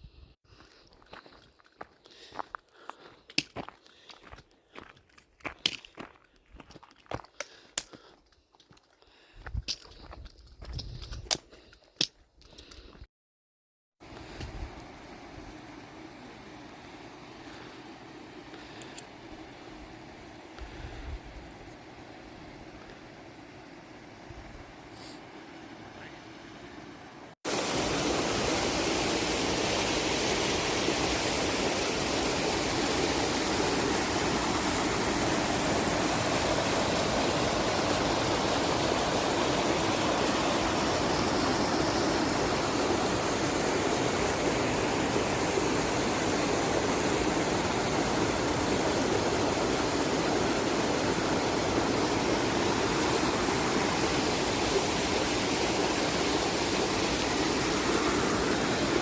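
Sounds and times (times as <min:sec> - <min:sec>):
creek water rushing: 0:14.0 - 0:59.0.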